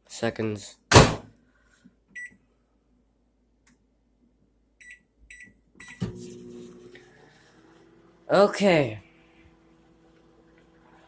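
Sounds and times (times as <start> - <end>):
microwave keypad beeps: 4.8 - 6.1
microwave running hum: 5.9 - 11.0.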